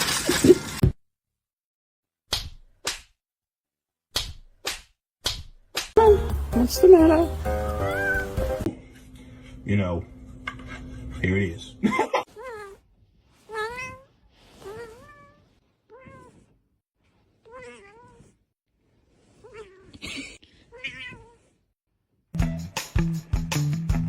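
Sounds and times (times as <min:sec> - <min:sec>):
cat meowing: 0:07.8 - 0:08.4, 0:13.5 - 0:16.5, 0:17.4 - 0:18.3, 0:19.4 - 0:20.0, 0:20.7 - 0:21.4.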